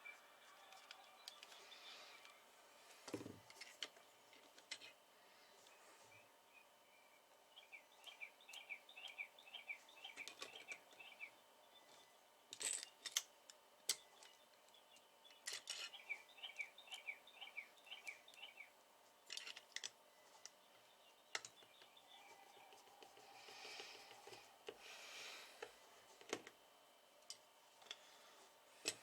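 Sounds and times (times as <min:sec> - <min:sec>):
small bird chirping: 0:05.7 - 0:12.2, 0:13.9 - 0:18.8, 0:20.2 - 0:24.6.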